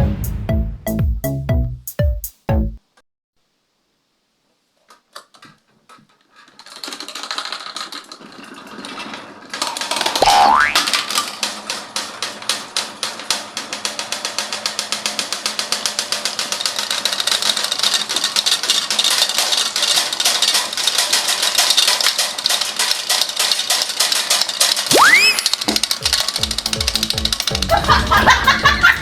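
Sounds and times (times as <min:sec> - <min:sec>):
rapid mechanical clicking: 0:06.4 - 0:10.2, 0:10.8 - 0:29.0.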